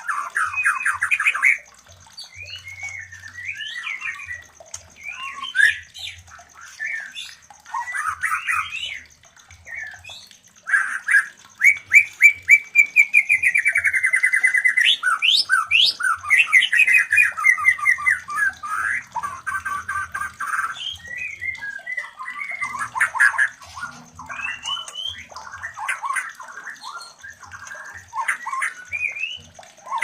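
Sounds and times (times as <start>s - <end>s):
birds singing whistled phrases: 0.0s - 30.0s
faint high ticking: 0.0s - 30.0s.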